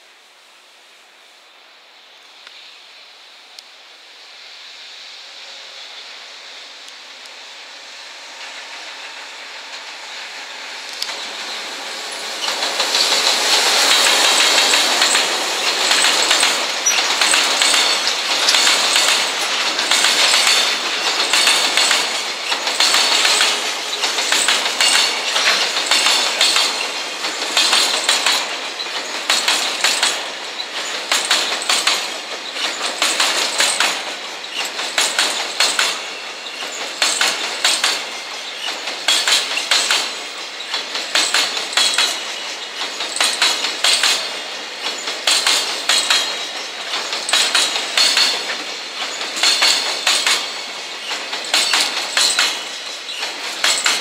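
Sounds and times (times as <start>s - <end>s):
train wheels rushing on rail: 0.0s - 54.0s
wheels clicking over track joints: 10.9s - 11.6s, 12.3s - 54.0s.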